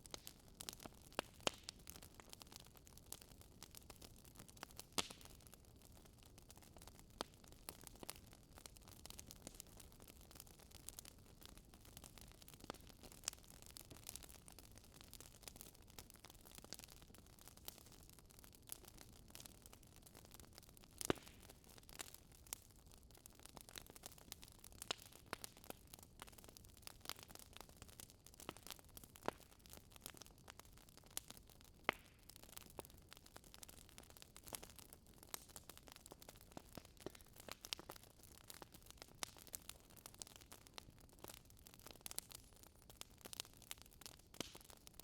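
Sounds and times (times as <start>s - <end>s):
wood fire crackling: 0.0s - 45.0s
fire pops: 0.1s - 1.8s, 21.0s - 22.1s, 36.5s - 39.5s.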